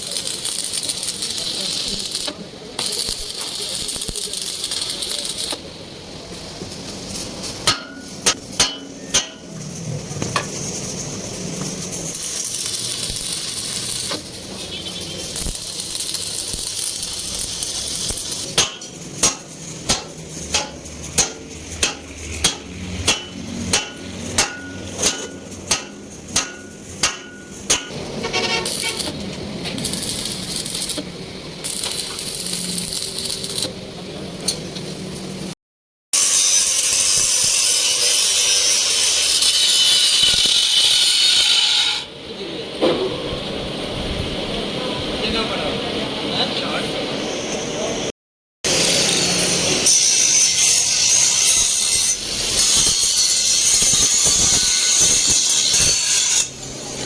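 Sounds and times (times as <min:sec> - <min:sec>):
hammer striking metal: 0:07.6 - 0:09.6, 0:18.4 - 0:29.1.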